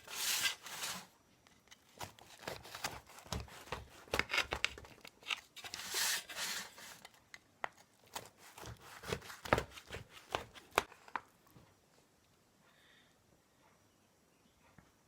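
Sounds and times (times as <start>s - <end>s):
rustling scrape: 0.0s - 1.2s, 5.6s - 7.1s.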